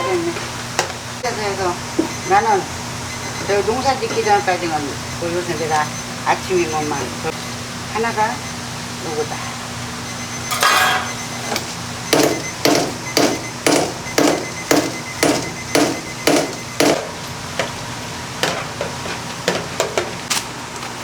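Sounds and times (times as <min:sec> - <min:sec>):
steady low hum: 0:00.0 - 0:20.2
chopping on a work surface: 0:12.1 - 0:17.1.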